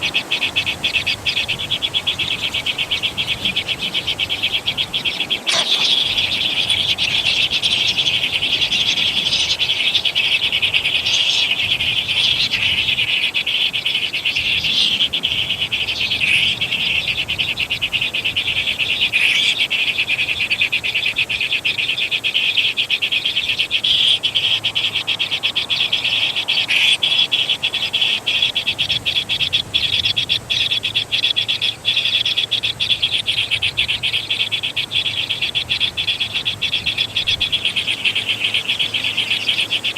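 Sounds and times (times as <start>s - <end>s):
brief louder animal calls: 5.3s - 6.4s.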